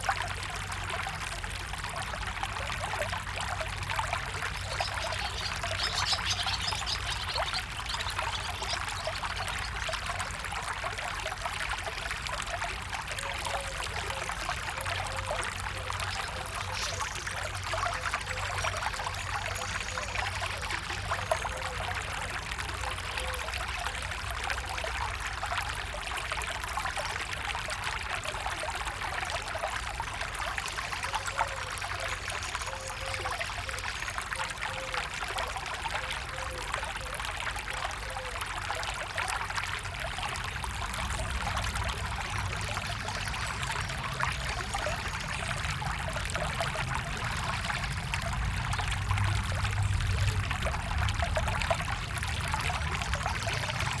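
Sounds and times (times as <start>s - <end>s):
stream flowing and trickling: 0.0s - 54.0s.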